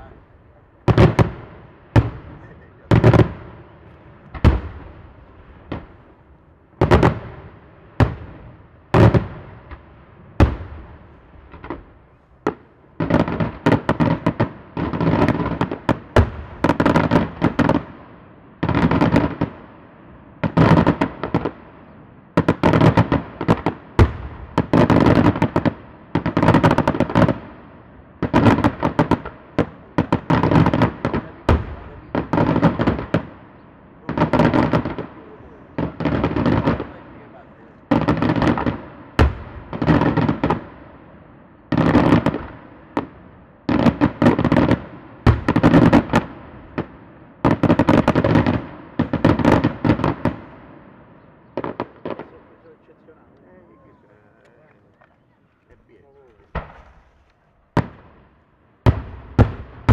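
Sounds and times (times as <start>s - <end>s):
fireworks shells exploding: 51.6s - 59.9s.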